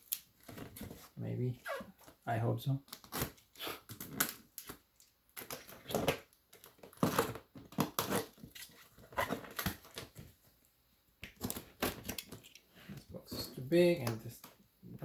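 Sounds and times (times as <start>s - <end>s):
cardboard and plastic rustling: 0.0s - 1.2s, 2.9s - 10.6s, 11.3s - 15.0s.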